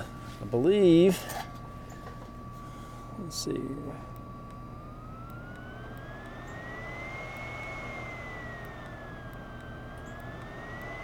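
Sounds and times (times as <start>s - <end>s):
electric blower fan whining: 0.0s - 11.0s
steady low hum: 0.0s - 11.0s.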